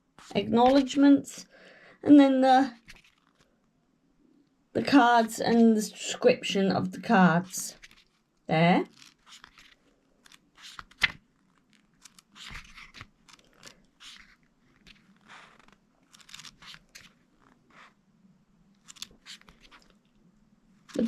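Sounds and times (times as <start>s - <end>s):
book pages turning: 0.1s - 0.9s, 2.7s - 3.5s, 7.7s - 8.2s, 8.8s - 18.0s, 18.8s - 20.2s, 20.8s - 21.0s.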